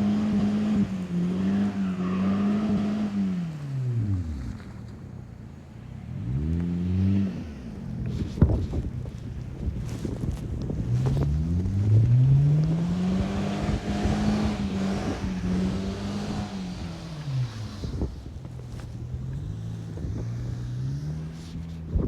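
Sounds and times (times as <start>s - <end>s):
footsteps crunching through snow: 8.3s - 11.8s
car engine revving: 10.8s - 22.0s.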